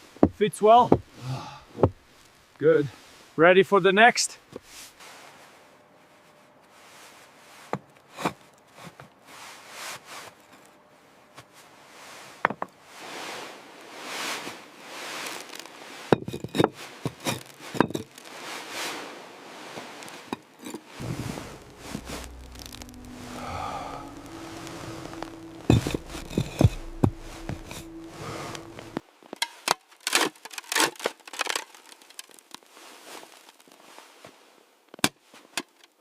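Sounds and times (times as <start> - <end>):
stones scraping and rustling: 15.1 - 18.7.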